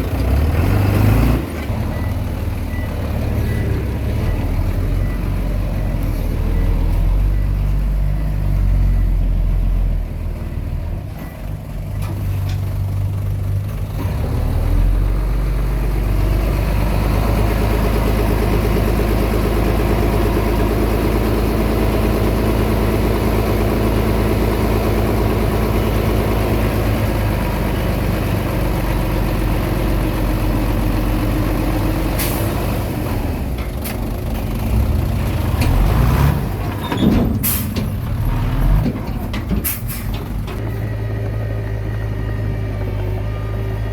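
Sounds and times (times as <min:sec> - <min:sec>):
bulldozer diesel engine running: 0:00.0 - 0:43.9.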